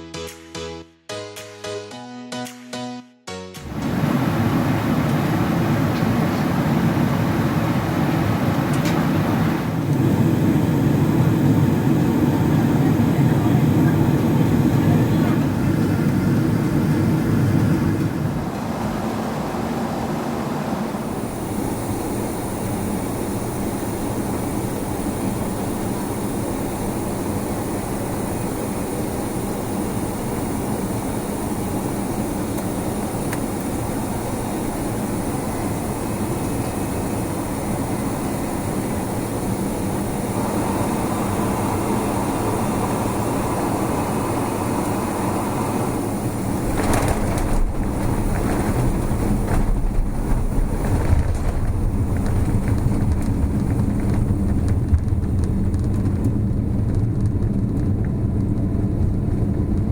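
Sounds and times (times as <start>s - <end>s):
vehicle rumbling in motion: 40.2s - 59.9s.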